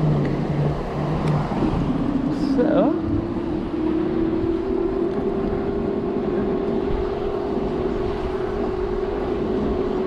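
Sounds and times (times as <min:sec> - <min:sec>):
steady rushing noise: 0:00.0 - 0:10.0.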